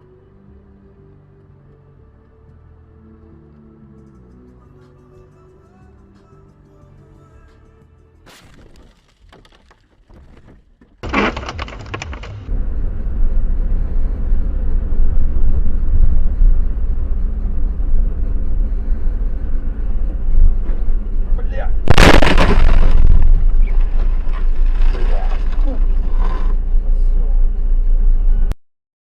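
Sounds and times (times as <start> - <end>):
vehicle rumbling on road: 9.4 - 28.6
loud crash: 11.0 - 12.5, 21.9 - 25.5.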